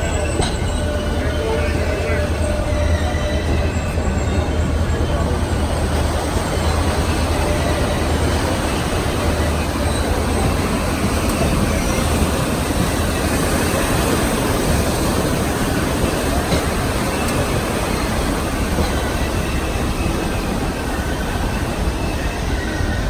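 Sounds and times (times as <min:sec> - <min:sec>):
train rumble and rail noise: 0:00.0 - 0:23.0.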